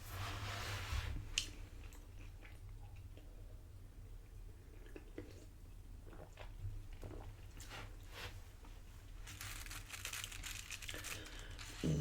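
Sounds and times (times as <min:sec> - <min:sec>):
tortilla chips crunching: 0:09.3 - 0:12.0.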